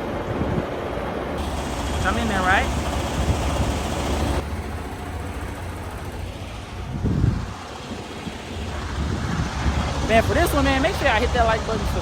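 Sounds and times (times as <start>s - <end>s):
diesel engine idling: 1.0s - 12.0s.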